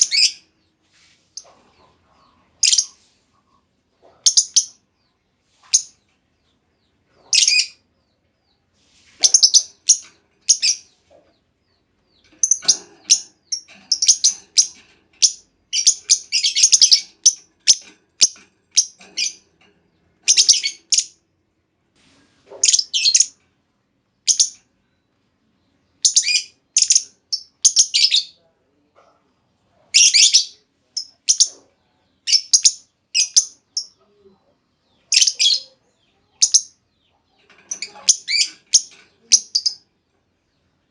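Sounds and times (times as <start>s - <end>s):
lovebird high-pitched chirps: 0.0s - 0.5s, 1.4s - 3.1s, 4.0s - 4.8s, 5.6s - 6.0s, 7.2s - 7.8s, 9.2s - 11.0s, 12.1s - 19.4s, 20.2s - 21.2s, 22.5s - 23.4s, 24.2s - 24.6s, 26.0s - 28.4s, 29.9s - 39.8s.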